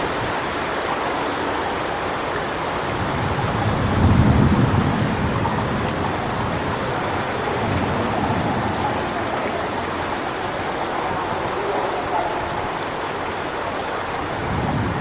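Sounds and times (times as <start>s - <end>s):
wind rushing through palm fronds: 0.0s - 15.0s
low gusty rumble: 2.8s - 13.1s.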